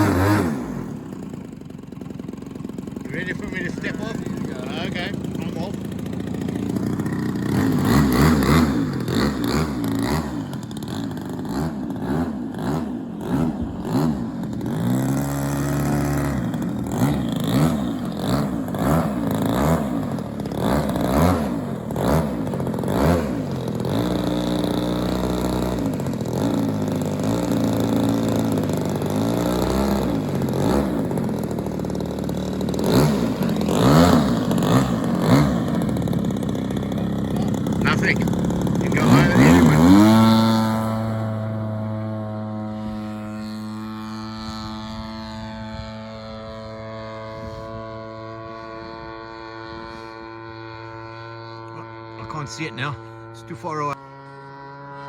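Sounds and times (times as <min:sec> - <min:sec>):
model aircraft engine: 0:00.0 - 0:55.0.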